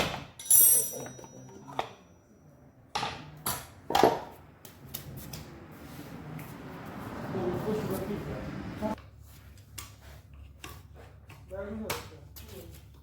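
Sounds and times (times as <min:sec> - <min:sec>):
metallic knocks and clinks of tools: 0:00.0 - 0:02.1.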